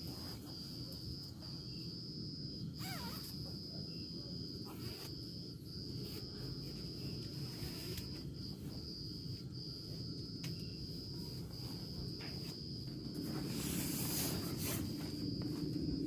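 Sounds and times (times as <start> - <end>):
insect trilling: 2.5 - 9.3.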